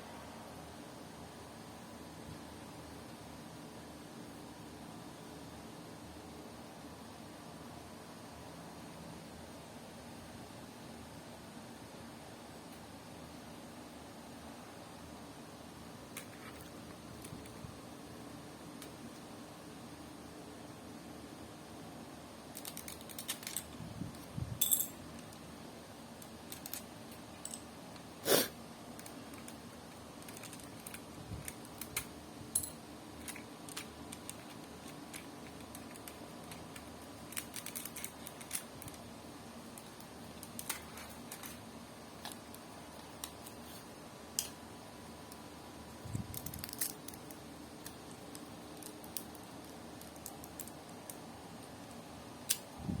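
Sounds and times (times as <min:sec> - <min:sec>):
plastic pieces clicking together: 0:22.6 - 0:23.7, 0:26.5 - 0:27.6, 0:30.2 - 0:32.1, 0:33.2 - 0:39.0, 0:39.8 - 0:41.6, 0:46.3 - 0:51.2.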